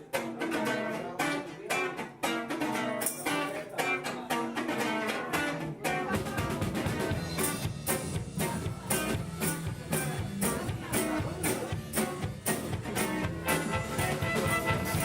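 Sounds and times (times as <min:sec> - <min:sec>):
guitar strumming chords: 0:00.0 - 0:15.0
low bass: 0:07.1 - 0:15.0.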